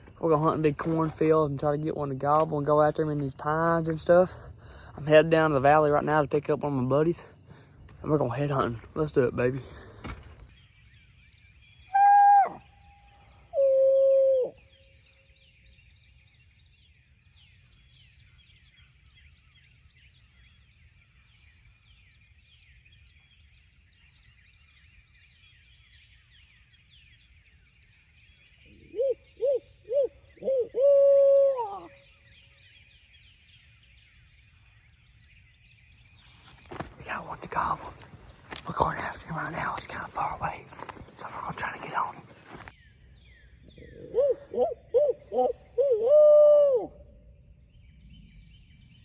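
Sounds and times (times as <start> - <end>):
owl call hoots: 11.9 - 12.8, 13.5 - 14.6, 28.8 - 32.0, 43.8 - 47.1
high chirping chorus: 31.8 - 46.0.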